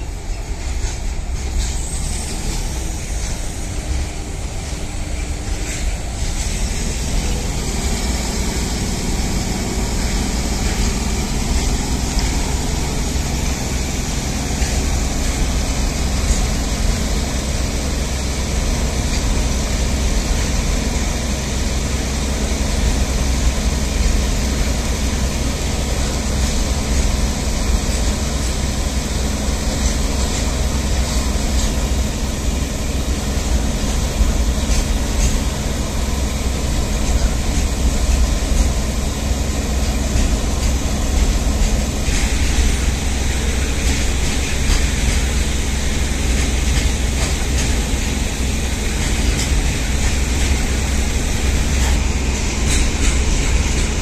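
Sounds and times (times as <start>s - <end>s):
freight wagon wheels on rails: 0.0s - 54.0s.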